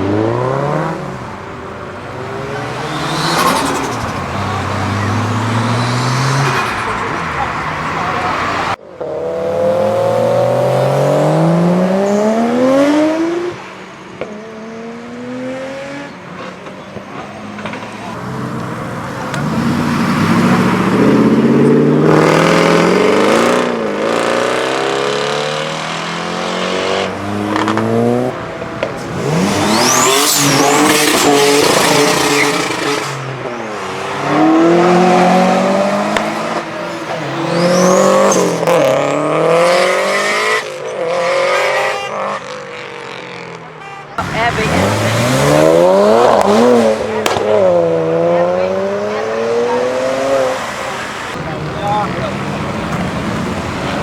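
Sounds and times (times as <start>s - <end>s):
car engines revving: 0.0s - 54.0s
tyre squeals: 37.1s - 38.6s.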